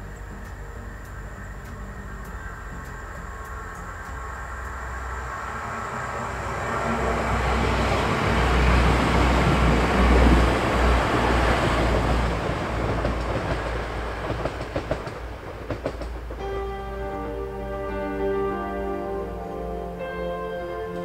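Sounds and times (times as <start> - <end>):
train passing: 0.0 - 21.0
wheels clicking over rail joints: 8.3 - 16.5.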